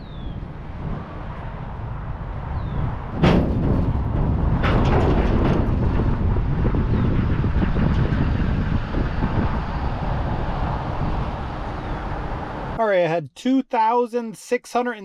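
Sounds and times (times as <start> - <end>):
vehicle engine rumbling: 0.0 - 12.8
rattling: 3.1 - 9.3.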